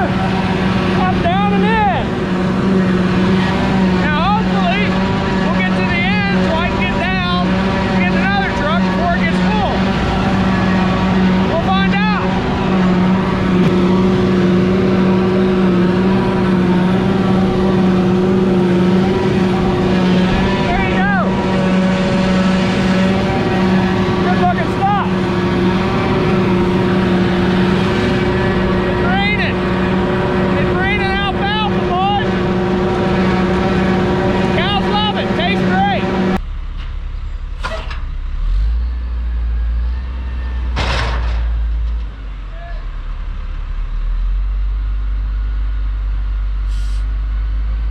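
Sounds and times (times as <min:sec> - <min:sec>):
farm machinery engine drone: 0:00.0 - 0:47.9.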